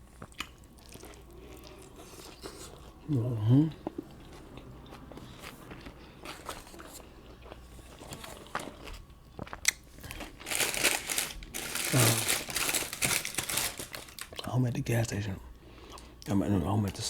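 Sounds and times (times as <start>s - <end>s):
paper wrapper crinkling: 10.0s - 14.5s.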